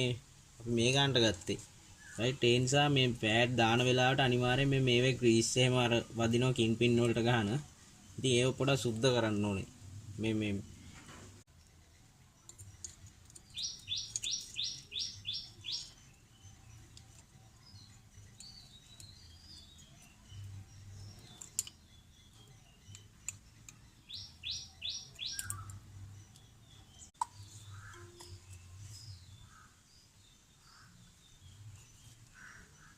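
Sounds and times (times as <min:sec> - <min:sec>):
songbird calling: 0:12.4 - 0:32.9.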